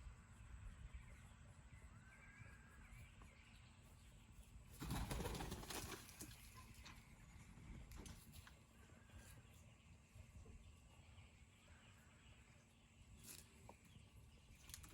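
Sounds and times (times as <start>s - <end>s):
faint bird chirps: 0.0s - 5.6s, 6.2s - 14.9s
peafowl wings flapping: 4.8s - 6.5s.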